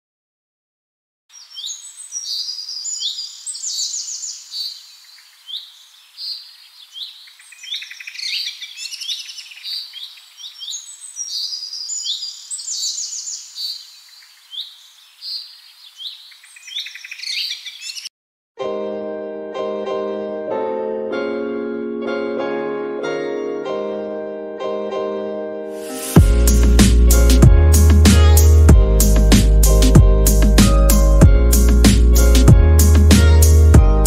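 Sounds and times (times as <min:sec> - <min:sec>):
birds chirping and singing: 0:01.3 - 0:18.1.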